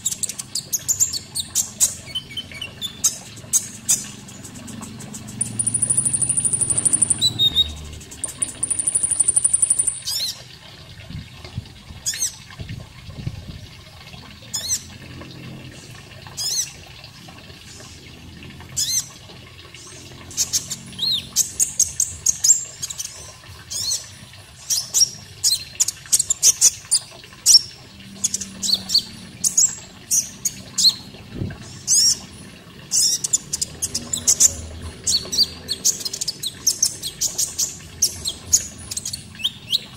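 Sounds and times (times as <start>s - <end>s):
buzzy high bird trill: 0.0s - 10.4s
faint running water: 0.0s - 39.9s.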